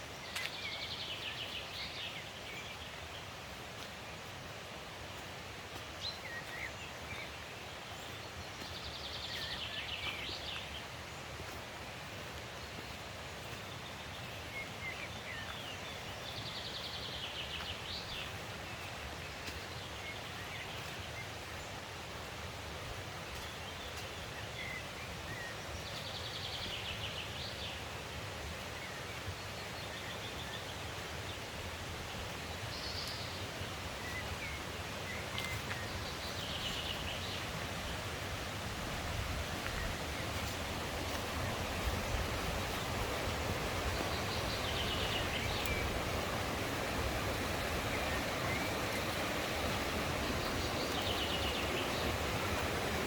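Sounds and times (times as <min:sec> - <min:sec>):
mountain stream rushing: 0:00.0 - 0:53.0.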